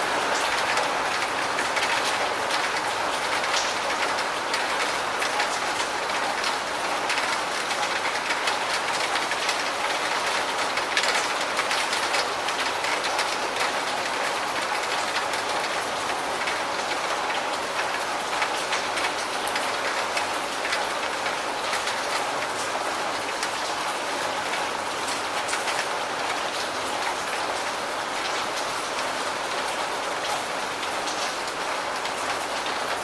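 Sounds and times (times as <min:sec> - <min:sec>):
raindrops tapping a surface: 0:00.0 - 0:33.0
steady rain: 0:00.0 - 0:33.0.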